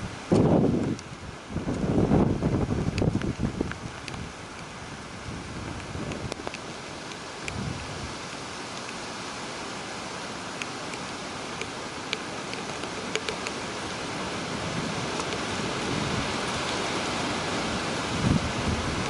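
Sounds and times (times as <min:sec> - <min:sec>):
wind buffeting microphone: 0:00.0 - 0:08.5, 0:12.7 - 0:19.0
heavy rain hissing: 0:00.0 - 0:19.0.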